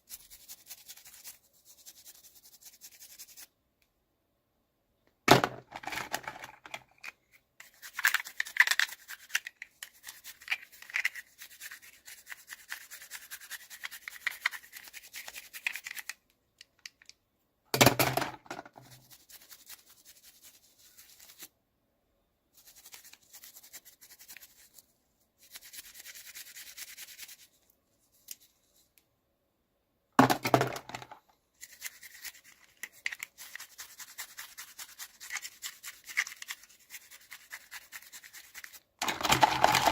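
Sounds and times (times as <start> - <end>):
packaging rustling and clicking: 39.0 - 39.9.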